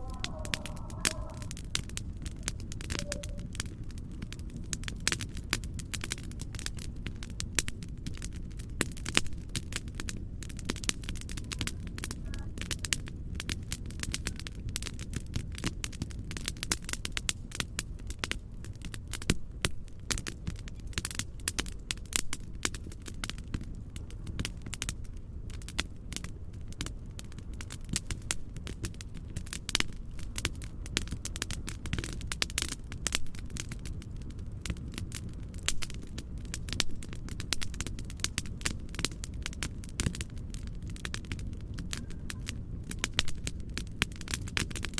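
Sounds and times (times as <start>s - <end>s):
low rumbling noise: 0.0s - 4.7s
fireplace crackling: 0.0s - 14.8s, 21.0s - 44.9s.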